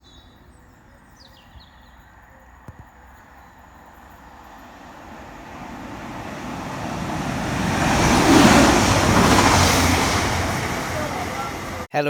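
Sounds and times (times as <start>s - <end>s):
train rumble and wheel noise: 0.4s - 11.9s.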